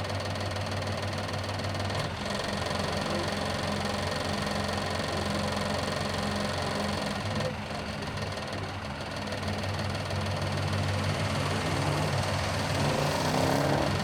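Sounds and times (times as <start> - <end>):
road noise: 4.9 - 14.0.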